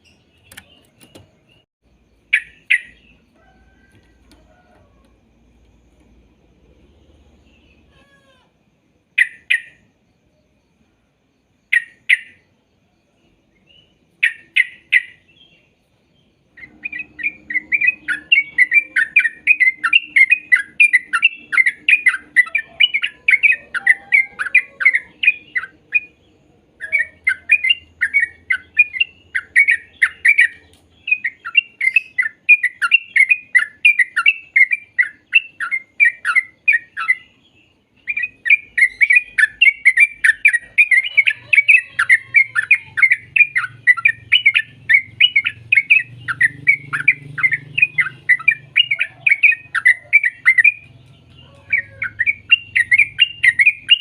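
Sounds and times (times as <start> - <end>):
bird singing chattering notes: 0.0 - 3.3, 16.2 - 54.0.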